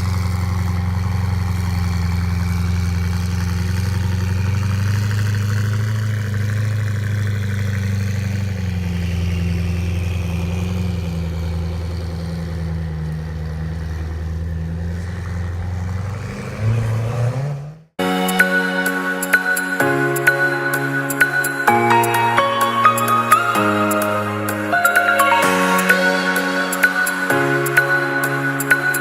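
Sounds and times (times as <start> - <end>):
car engine running: 0.0 - 16.2
engine revving: 0.0 - 17.9.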